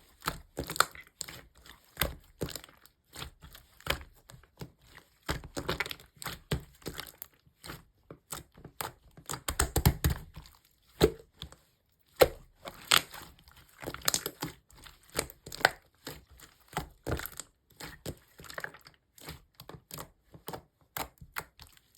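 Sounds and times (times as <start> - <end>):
slime clicking and popping: 9.3 - 10.3, 13.9 - 14.4.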